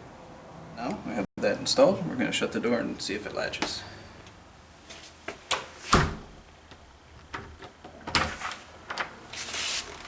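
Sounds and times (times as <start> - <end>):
door shutting thump: 5.9 - 6.4.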